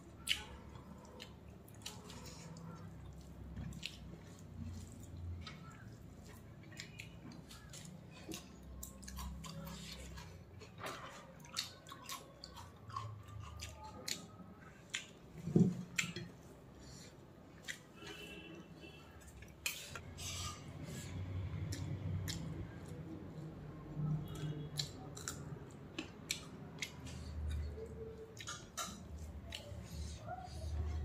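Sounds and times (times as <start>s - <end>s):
person chewing with wet mouth clicks: 0.2s - 15.2s, 21.5s - 23.4s, 24.0s - 30.2s.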